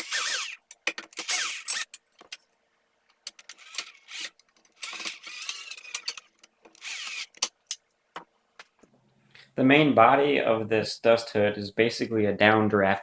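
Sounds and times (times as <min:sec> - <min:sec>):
cordless drill running: 0:00.0 - 0:00.6, 0:01.2 - 0:01.8, 0:06.8 - 0:07.3.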